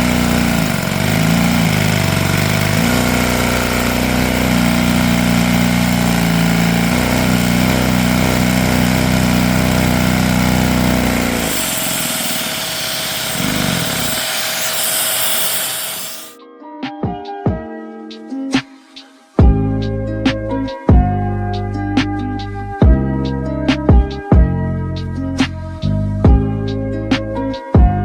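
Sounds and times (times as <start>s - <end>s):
hiss: 0.0s - 16.4s
small vacuum engine running: 0.0s - 16.4s.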